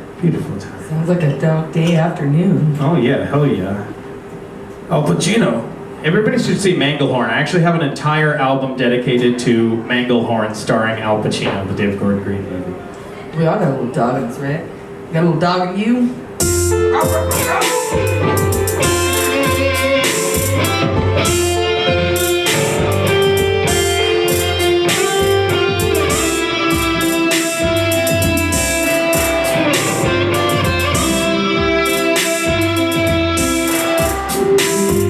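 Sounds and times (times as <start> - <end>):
drums with cymbal hits: 16.4 - 35.0
pulsing bass line: 16.4 - 35.0
electric guitar: 16.5 - 35.0.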